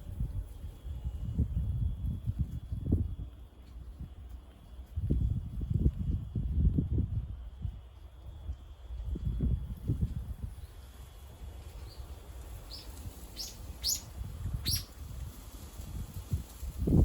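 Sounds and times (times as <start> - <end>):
low rumble of wind: 0.0 - 17.0
small bird chirping: 11.8 - 15.0.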